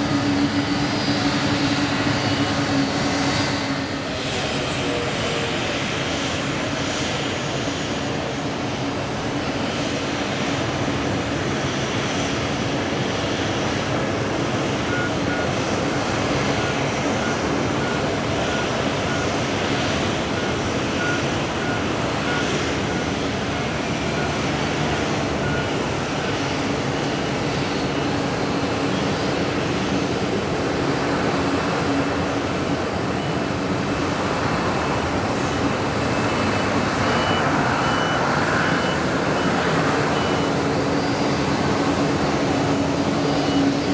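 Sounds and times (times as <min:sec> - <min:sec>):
jet engines running: 0:00.0 - 0:43.9
vehicle reversing beeps: 0:14.1 - 0:43.9
beeping: 0:14.6 - 0:28.1, 0:36.1 - 0:43.9.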